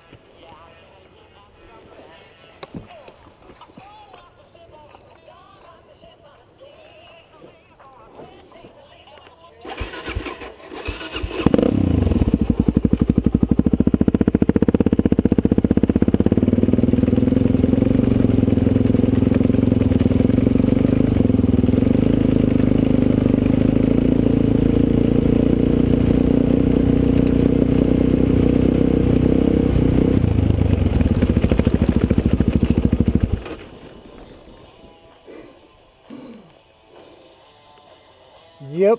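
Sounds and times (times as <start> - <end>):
motorcycle engine running: 9.7 - 35.9.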